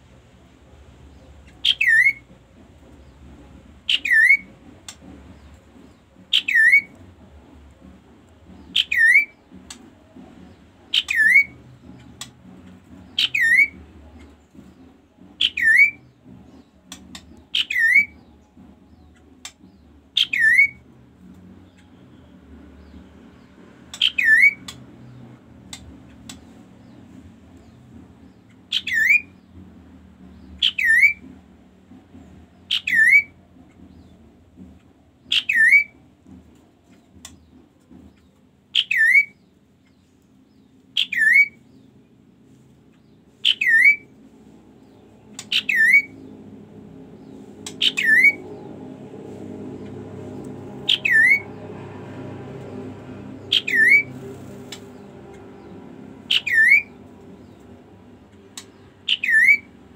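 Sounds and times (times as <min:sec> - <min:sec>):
low background rumble: 0:00.0 - 0:59.9
bird calling sharp falling notes: 0:47.7 - 0:48.4, 0:50.9 - 0:51.5, 0:53.5 - 0:54.1, 0:56.3 - 0:56.9, 0:59.1 - 0:59.7.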